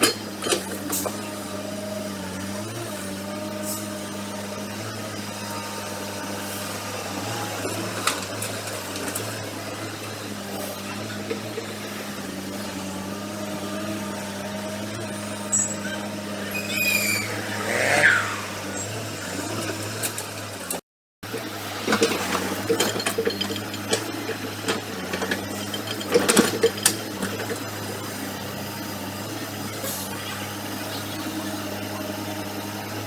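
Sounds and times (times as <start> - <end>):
heavy diesel engine running: 0.0 - 33.0
falling squeal: 15.5 - 18.9.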